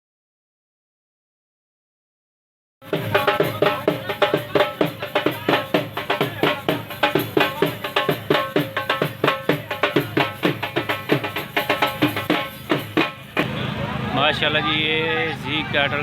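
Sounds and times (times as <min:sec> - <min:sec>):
fast hand-drum music: 0:02.8 - 0:13.6.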